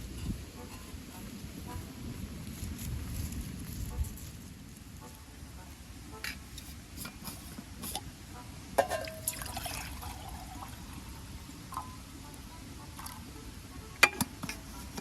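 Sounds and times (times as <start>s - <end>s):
liquid pouring into vessel: 8.8s - 12.0s.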